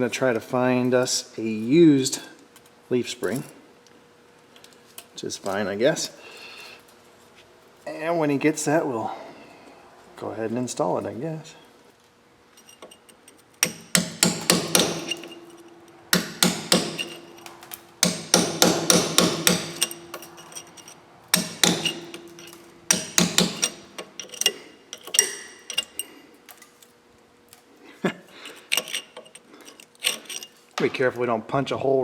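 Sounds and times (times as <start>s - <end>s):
hammer striking steel: 13.6s - 26.1s.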